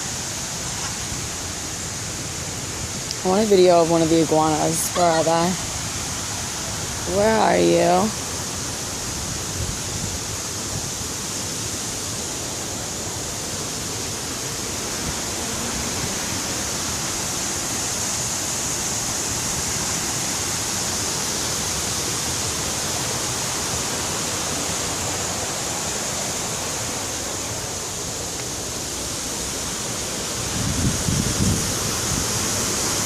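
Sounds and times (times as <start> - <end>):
rushing falling water: 0.0 - 33.0.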